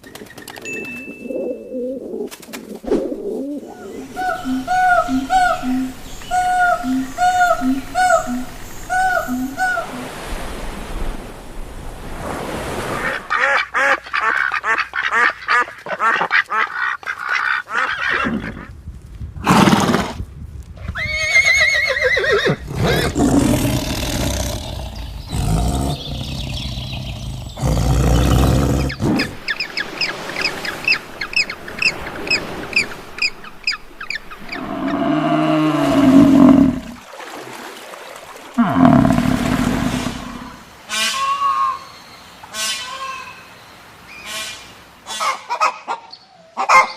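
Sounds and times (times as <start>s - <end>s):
farm animal calls: 3.7s - 10.1s
ducks quacking: 13.0s - 18.2s.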